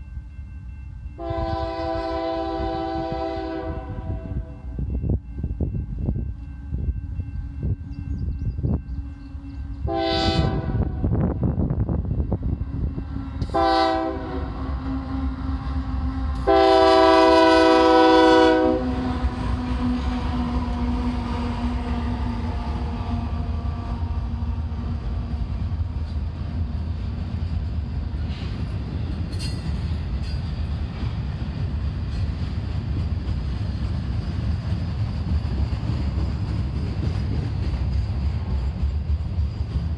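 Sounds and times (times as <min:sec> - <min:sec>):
train rolling past: 0:00.0 - 0:39.9
wheel noise on rails: 0:00.0 - 0:39.9
locomotive air horn blasts: 0:01.2 - 0:04.7, 0:09.8 - 0:11.2, 0:13.2 - 0:24.3.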